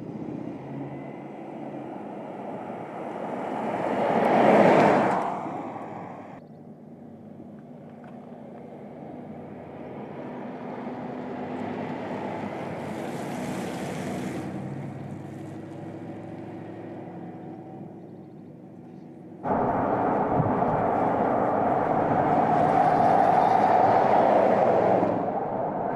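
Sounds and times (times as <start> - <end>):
car engine hum: 0.0 - 25.9
tyre and wind rush: 19.4 - 25.9.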